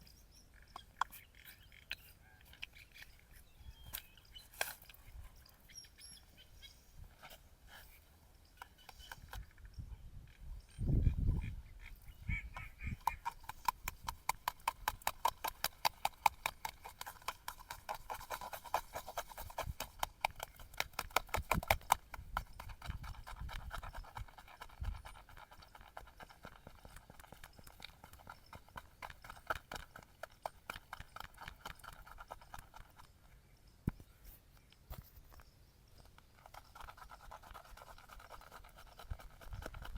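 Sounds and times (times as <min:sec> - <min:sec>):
straight razor scraping stubble: 0:12.3 - 0:33.1, 0:36.3 - 0:39.9.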